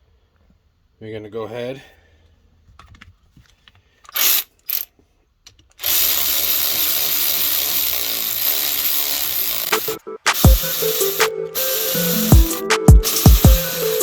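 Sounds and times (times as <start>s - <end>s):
power tool rasping: 4.2s - 4.9s, 5.8s - 14.0s.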